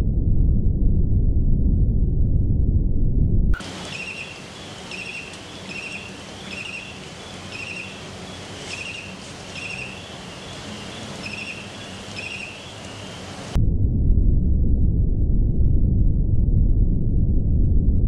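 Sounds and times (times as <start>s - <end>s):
bird trilled chirps: 3.6s - 13.5s
steady outdoor hiss: 3.6s - 13.6s.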